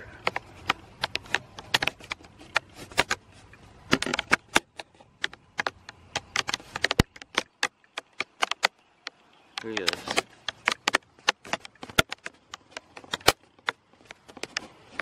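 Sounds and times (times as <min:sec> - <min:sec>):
raindrops ticking on hard surface: 0:03.9 - 0:15.0.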